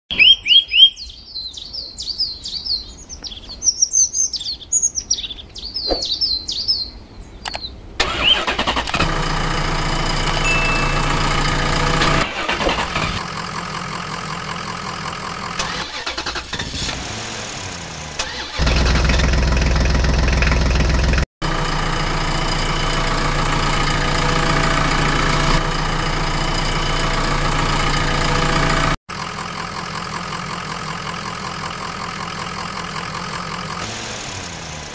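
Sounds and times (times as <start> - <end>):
birds chirping: 0.1 - 8.5
vehicle engine starting and running: 7.5 - 34.9.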